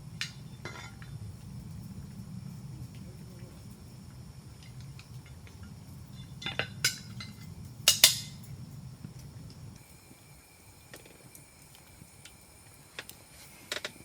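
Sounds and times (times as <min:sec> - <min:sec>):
cookware clinking and knocking: 0:06.4 - 0:08.4.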